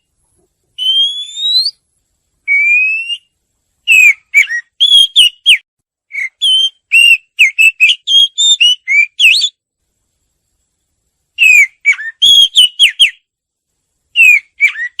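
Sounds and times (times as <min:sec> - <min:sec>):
bird singing whistled notes: 0:00.8 - 0:01.8, 0:02.4 - 0:09.6, 0:11.4 - 0:13.3, 0:14.1 - 0:15.0.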